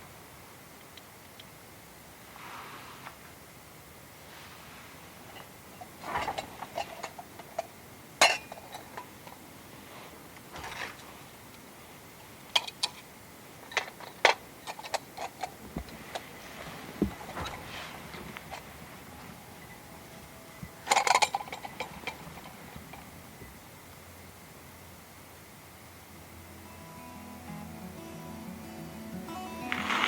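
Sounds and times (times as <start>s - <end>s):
metal camp gear clinking: 5.3s - 9.4s, 13.6s - 16.2s, 20.7s - 23.1s.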